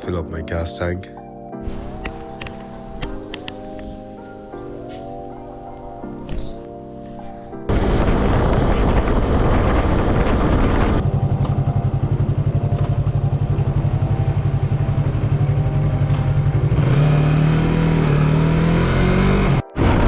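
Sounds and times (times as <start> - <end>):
motorcycle engine idling: 11.0 - 17.2.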